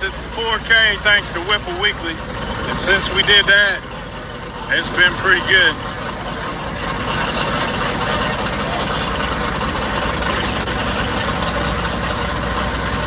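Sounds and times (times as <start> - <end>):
distant drag-race engines rumbling: 0.0 - 13.0
hiss: 7.0 - 7.9.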